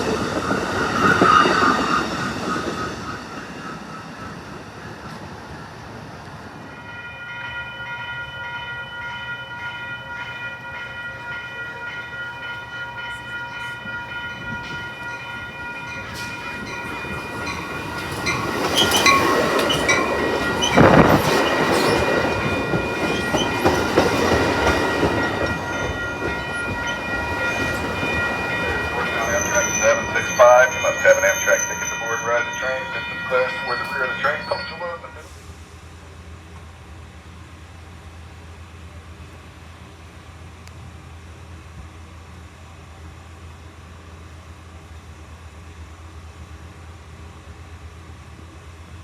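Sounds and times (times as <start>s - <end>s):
train wheel noise: 0.0s - 37.6s
train rumbling past: 0.0s - 49.0s
steady high-toned ringing: 24.6s - 35.2s.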